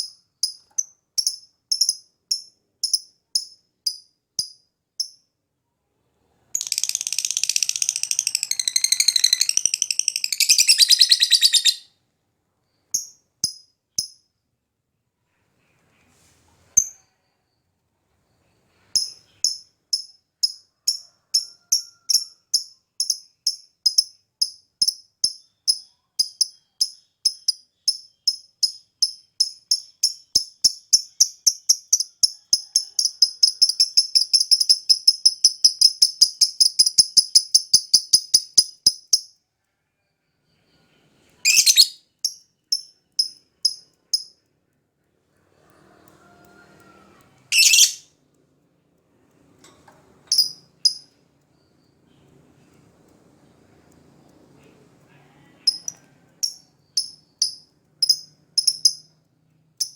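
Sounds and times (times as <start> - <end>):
lovebird chirping and trilling: 6.6 - 11.9, 41.4 - 44.3, 47.5 - 48.1, 55.7 - 59.1.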